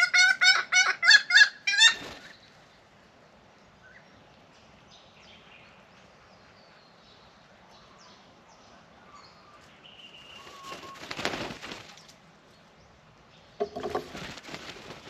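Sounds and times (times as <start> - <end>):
birds chirping: 0.0 - 14.4
wings flapping: 1.8 - 2.4, 10.2 - 12.2, 13.6 - 15.0.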